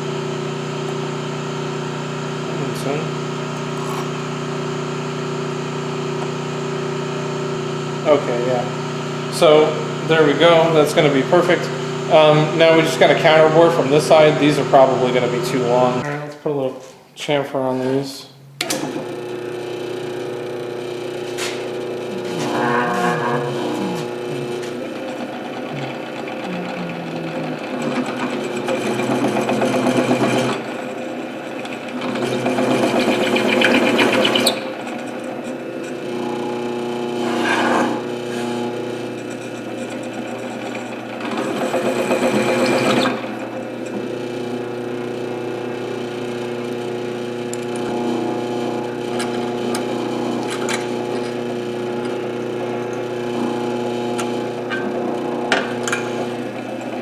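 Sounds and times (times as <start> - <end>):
power tool motor running: 0.0 - 16.0, 18.8 - 57.0
cutter countersinking metal: 3.5 - 4.3, 21.5 - 30.6, 54.1 - 56.9.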